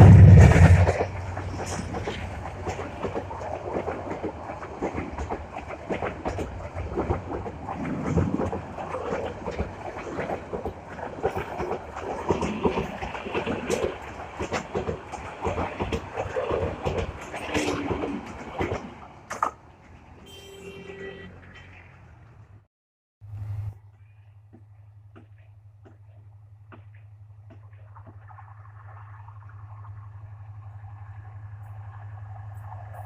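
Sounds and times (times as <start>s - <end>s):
wheels clattering over rail joints: 0.0s - 20.3s
train rumble: 0.0s - 20.7s, 23.2s - 33.0s.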